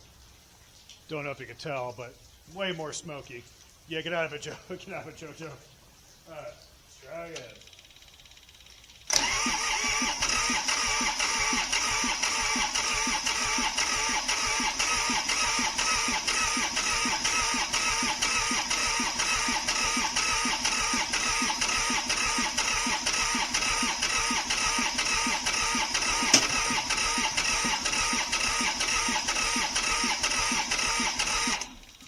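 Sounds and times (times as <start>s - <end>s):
diesel engine cranking on starter: 9.0s - 32.0s
sharp click: 26.3s - 26.7s.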